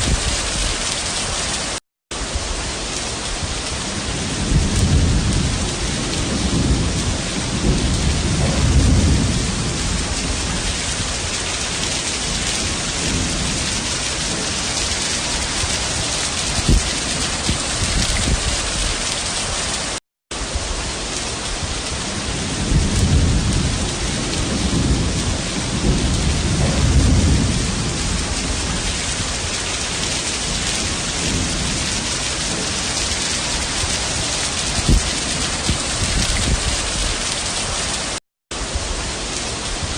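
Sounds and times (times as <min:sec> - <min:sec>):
heavy rain pouring: 0:00.0 - 0:39.9
deep rumbles: 0:04.4 - 0:11.3, 0:22.6 - 0:29.5.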